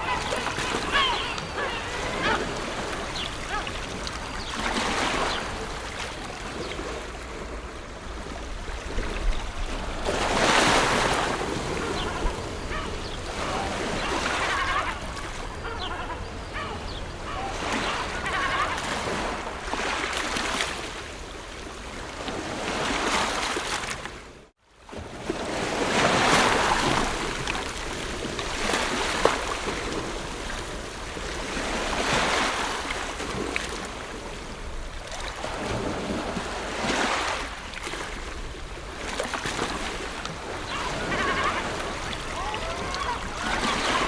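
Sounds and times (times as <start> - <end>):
ocean surf breaking: 0.0 - 21.2, 35.0 - 44.0.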